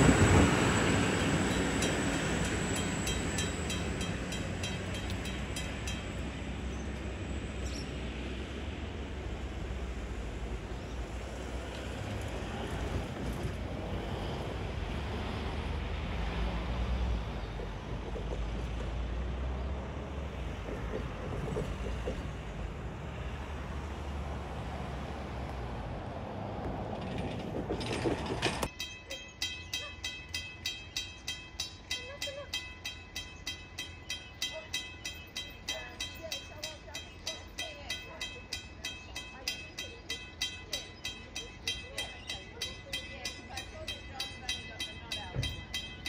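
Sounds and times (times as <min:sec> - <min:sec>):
diesel railcar passing: 0:00.0 - 0:46.0
regular ticking: 0:00.3 - 0:06.5, 0:28.7 - 0:46.0.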